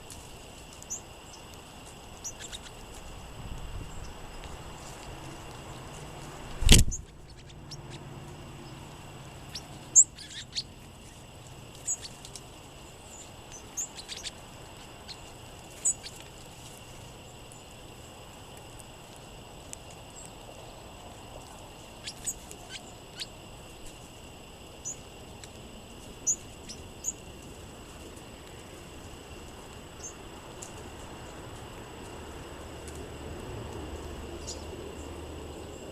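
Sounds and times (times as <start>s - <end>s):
songbirds chip calls: 0.7s - 4.6s, 5.4s - 17.9s, 21.5s - 23.5s, 24.6s - 27.3s, 29.9s - 31.4s, 34.0s - 35.9s.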